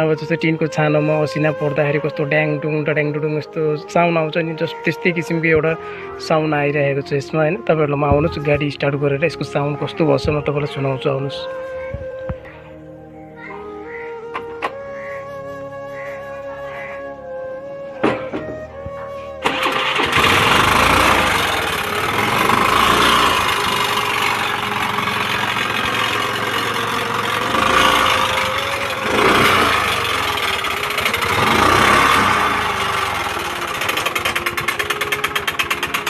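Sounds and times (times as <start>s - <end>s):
scooter engine revving: 19.4s - 36.0s
rapid even ticking: 19.5s - 36.0s.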